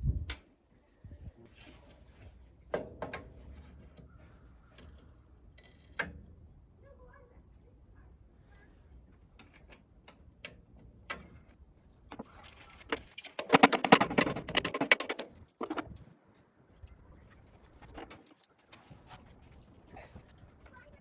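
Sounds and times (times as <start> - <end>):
hand tools clicking on metal: 13.0 - 16.0
rapid clicking: 13.3 - 16.0.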